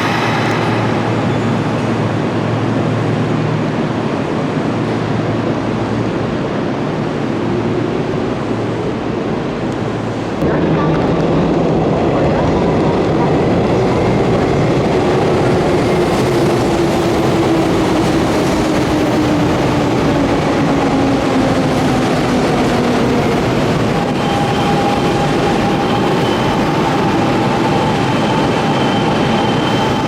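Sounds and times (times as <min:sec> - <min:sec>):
high brake squeal: 0:24.0 - 0:30.0.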